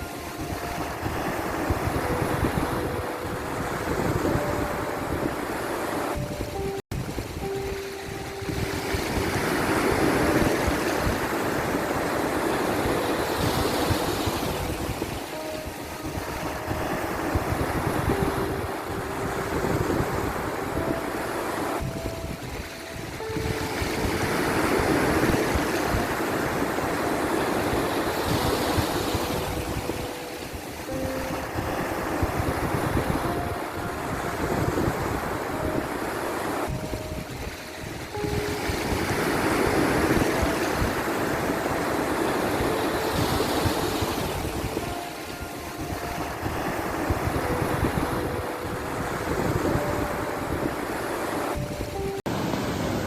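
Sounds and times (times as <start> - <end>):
ocean waves washing: 0.0 - 53.0
soft held notes: 0.0 - 53.0
soft slow music: 0.0 - 53.0.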